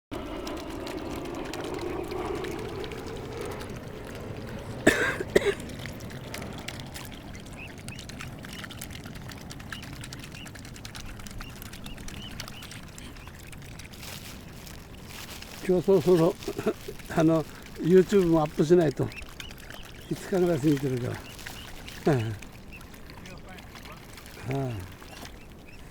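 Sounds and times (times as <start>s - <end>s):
water pouring and trickling: 0.1s - 25.9s
small birds chirping: 5.6s - 25.9s.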